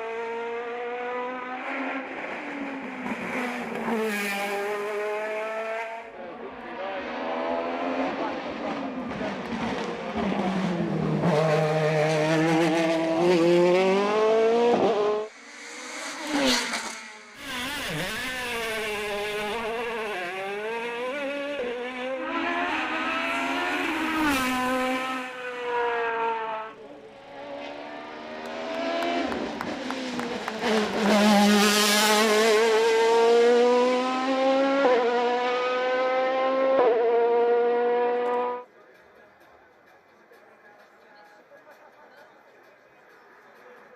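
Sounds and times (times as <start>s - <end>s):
race car engine accelerating: 0.0s - 38.6s.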